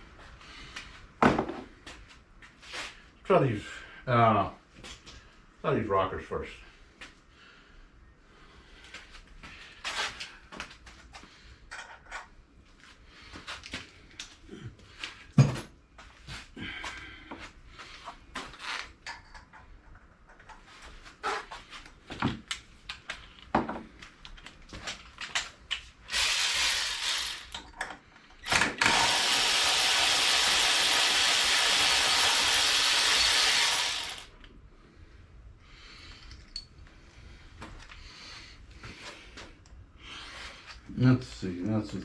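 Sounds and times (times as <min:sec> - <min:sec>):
loud steady hiss: 0:26.1 - 0:27.6, 0:28.9 - 0:34.3.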